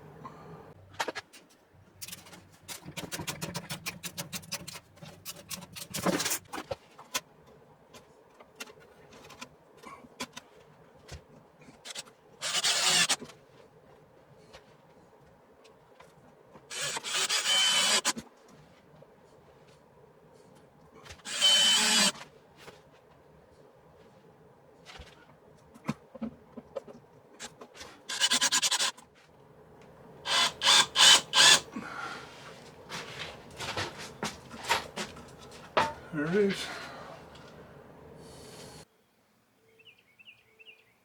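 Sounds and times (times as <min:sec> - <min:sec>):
power tool bursts: 0:12.4 - 0:13.2, 0:16.7 - 0:18.1, 0:21.3 - 0:22.2, 0:28.1 - 0:28.9, 0:30.3 - 0:31.7.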